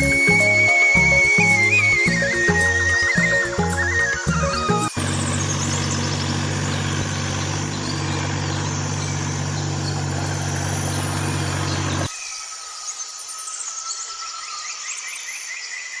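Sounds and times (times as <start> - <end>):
engine idling: 0.0 - 12.1.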